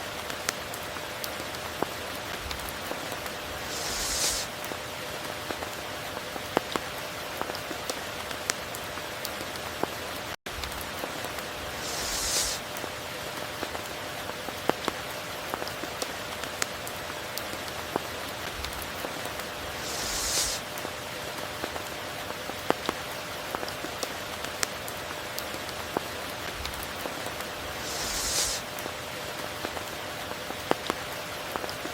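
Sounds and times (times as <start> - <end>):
raindrops ticking on surfaces: 0.0 - 27.9, 28.6 - 31.9
heavy rain hissing: 2.3 - 5.1, 10.9 - 14.0, 18.3 - 21.3, 26.2 - 29.6.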